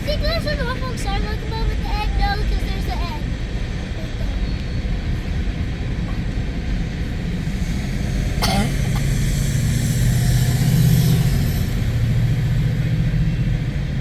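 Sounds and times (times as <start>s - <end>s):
train cars rumbling over rails: 0.0s - 14.0s
low steady drone: 2.8s - 14.0s.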